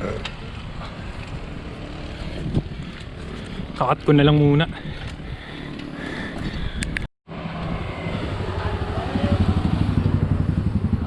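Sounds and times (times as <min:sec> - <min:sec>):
road and wind noise: 0:00.0 - 0:11.0
vehicle engine pulsing: 0:07.3 - 0:11.0.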